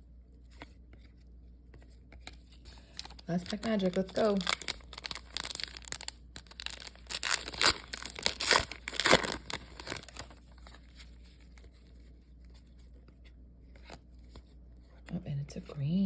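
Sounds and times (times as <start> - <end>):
wrapper ripping and crinkling: 2.9 - 10.9.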